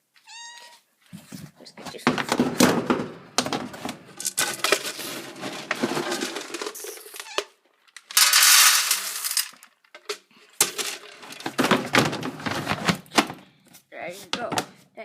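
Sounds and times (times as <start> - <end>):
kibble poured into a dish: 8.1 - 9.6.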